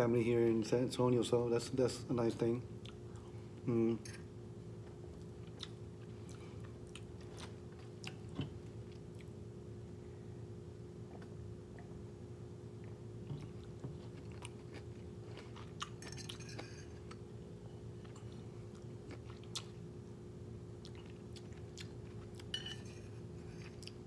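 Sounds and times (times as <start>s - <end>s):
faint steady hum: 0.0s - 24.0s
person chewing: 5.1s - 9.4s, 12.8s - 17.3s, 17.9s - 19.8s, 20.8s - 22.5s, 23.4s - 24.0s.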